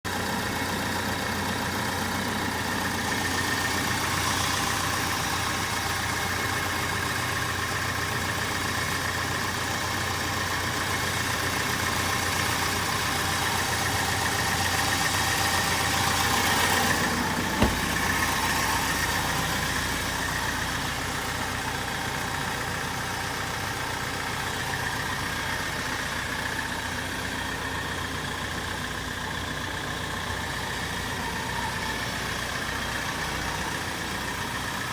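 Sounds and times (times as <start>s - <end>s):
truck engine idling: 0.1s - 34.9s
sharp knock: 17.6s - 18.1s.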